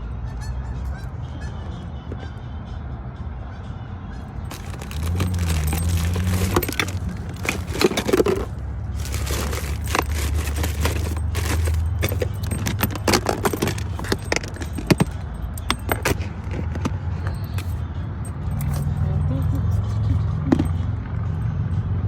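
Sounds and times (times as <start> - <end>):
small hard objects clinking: 4.5 - 17.8.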